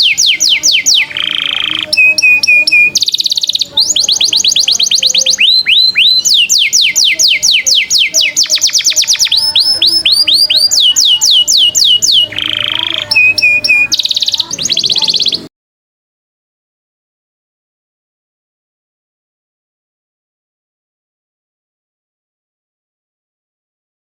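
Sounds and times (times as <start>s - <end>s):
songbirds whistling fast runs: 0.0s - 15.5s.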